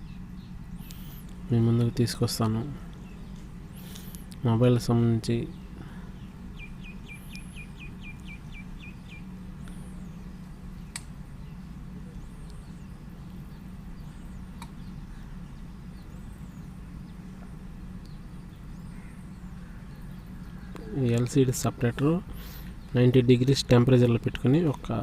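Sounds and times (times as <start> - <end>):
bird chirps: 0.0 - 4.5, 5.2 - 25.0
steady low hum: 0.0 - 25.0
sharp clicks: 10.9 - 11.2, 14.6 - 14.8.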